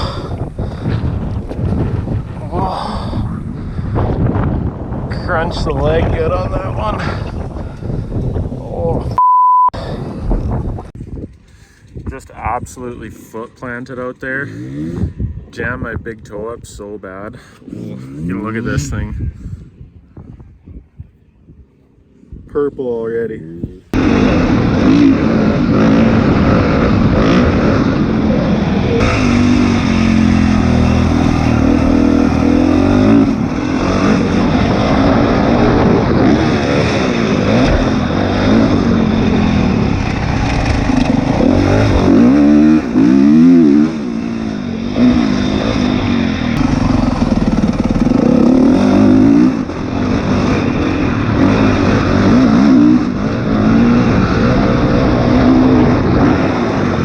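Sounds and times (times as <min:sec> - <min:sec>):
dirt bike engine revving: 0:14.5 - 0:15.4, 0:17.6 - 0:19.2, 0:23.9 - 0:57.0.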